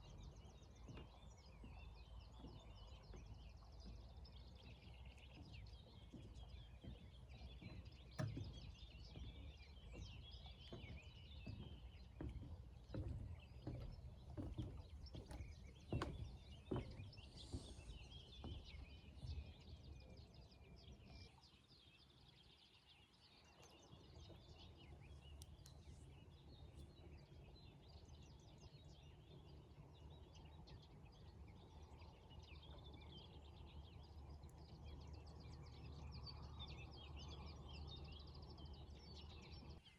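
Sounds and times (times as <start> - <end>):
small birds chirping: 0.0 - 39.9
soft knocks: 6.1 - 20.0.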